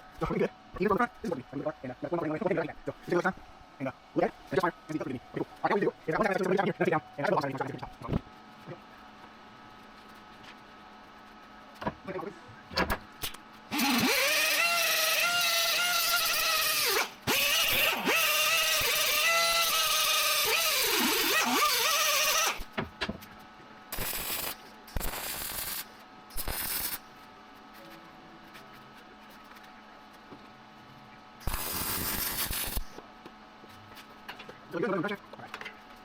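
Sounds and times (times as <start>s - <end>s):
power tool motor whining: 13.7s - 22.7s.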